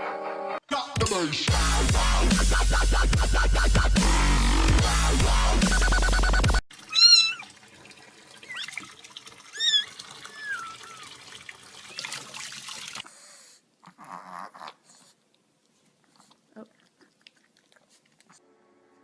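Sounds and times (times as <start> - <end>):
dubstep music: 0.7 - 6.6
cat meowing: 6.9 - 7.5, 9.6 - 11.1.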